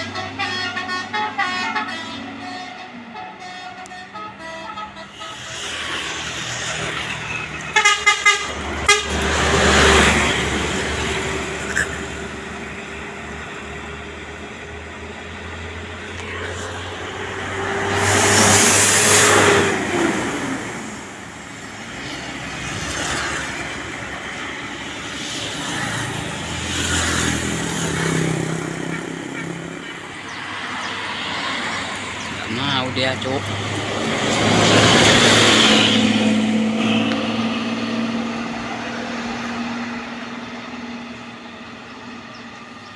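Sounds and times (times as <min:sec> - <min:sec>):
heavy road traffic passing: 0:00.0 - 0:42.9
short horn toots: 0:00.2 - 0:05.8, 0:07.7 - 0:09.4.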